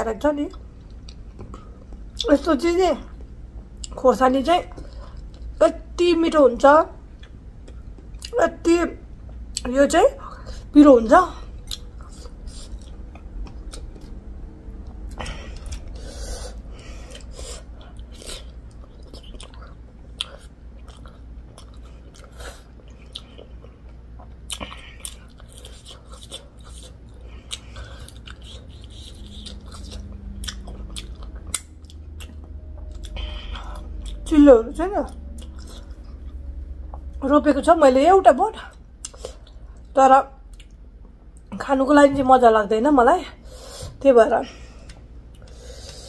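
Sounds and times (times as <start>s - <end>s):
steady low hum: 0.0s - 46.0s
person chewing food: 0.5s - 2.3s, 4.7s - 5.6s, 7.1s - 8.3s, 11.5s - 34.3s, 35.1s - 37.2s, 38.7s - 39.9s, 44.8s - 46.0s.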